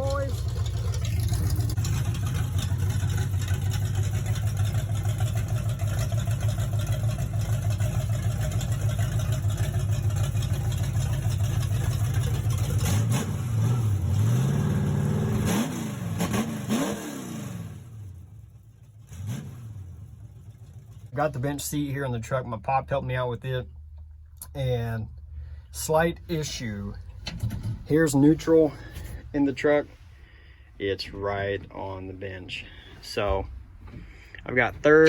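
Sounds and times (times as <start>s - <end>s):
engine idling and revving: 0.0s - 22.6s.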